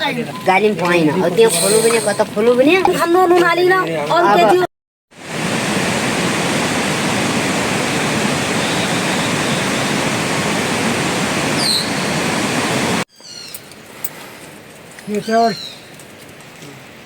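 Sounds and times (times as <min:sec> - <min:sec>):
fast-flowing water rushing: 0:04.4 - 0:13.1
faint high bird chirp: 0:11.6 - 0:12.0, 0:13.1 - 0:13.7.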